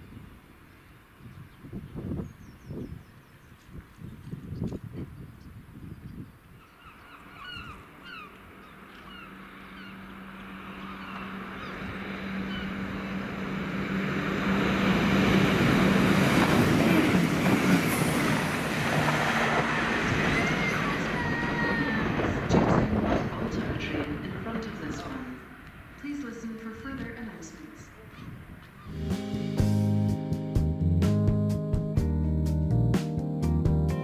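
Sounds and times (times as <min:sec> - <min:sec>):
birds calling: 0:00.6 - 0:13.6, 0:15.7 - 0:29.3
wheel-on-rail noise: 0:06.6 - 0:29.0
diesel train engine drone: 0:06.8 - 0:34.0
high wheel squeal: 0:19.7 - 0:22.6.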